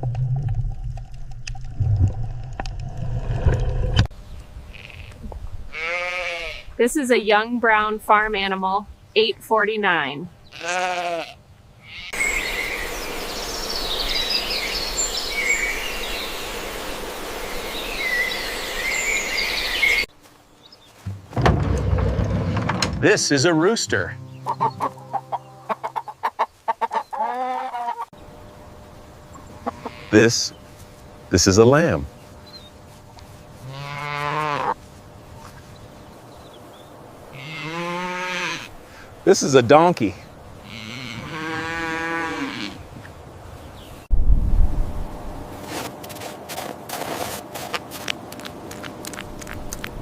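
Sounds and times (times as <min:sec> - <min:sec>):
outdoor background noise: 0:00.0 - 0:50.0
small birds chirping: 0:12.1 - 0:21.0, 0:24.2 - 0:33.8, 0:35.2 - 0:37.0
drawn-out livestock calls: 0:24.0 - 0:28.1, 0:29.6 - 0:30.4, 0:33.6 - 0:34.8, 0:37.3 - 0:38.8, 0:40.6 - 0:42.8.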